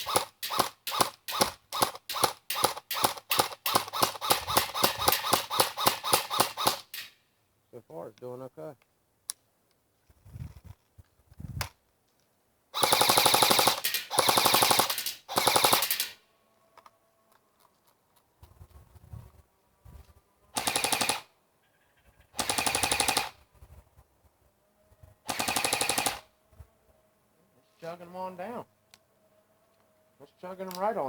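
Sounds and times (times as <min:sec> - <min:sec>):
airsoft gun full-auto bursts: 0:00.0 - 0:07.2, 0:12.8 - 0:16.2, 0:20.6 - 0:21.3, 0:22.4 - 0:23.4, 0:25.3 - 0:26.3.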